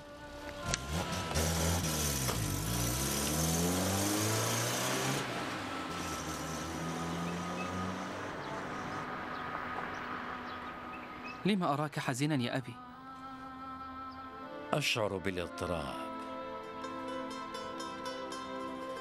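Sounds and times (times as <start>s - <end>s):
road noise: 0.0s - 14.8s, 15.4s - 19.0s
car engine accelerating: 0.3s - 11.5s.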